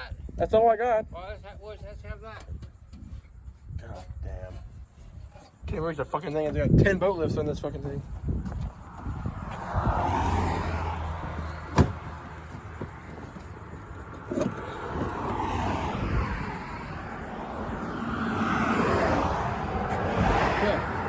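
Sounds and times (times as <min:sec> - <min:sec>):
cars whooshing by: 0:07.2 - 0:21.0.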